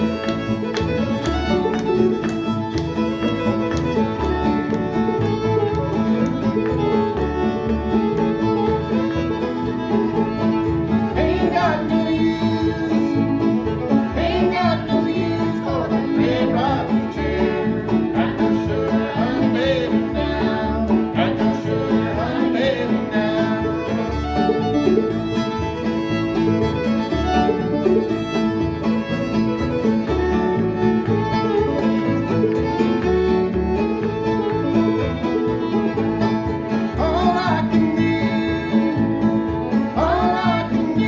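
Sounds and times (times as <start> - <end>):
fiddle melody: 0.0 - 41.0
strummed guitar: 0.0 - 41.0.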